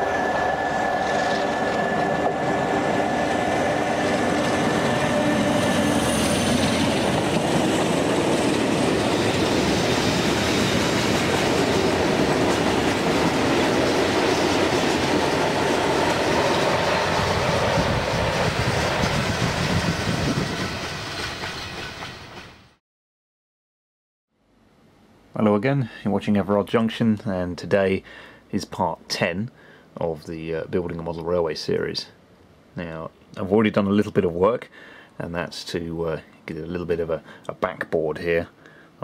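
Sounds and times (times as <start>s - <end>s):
steady whining tone: 0.0s - 21.4s
freight train wagons clattering: 1.0s - 22.4s.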